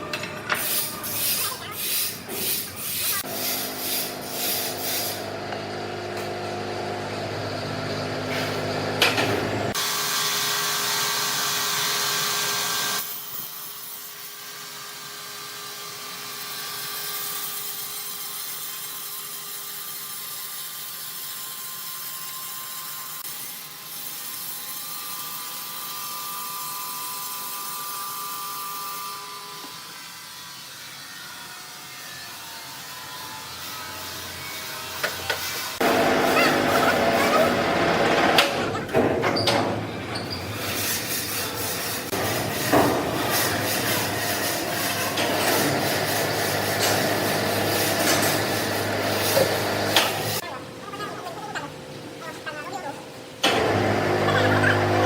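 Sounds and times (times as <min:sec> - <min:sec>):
sawmill machinery clattering: 0:34.9 - 0:50.4, 0:53.4 - 0:55.0
machine hum: 0:35.8 - 0:39.2.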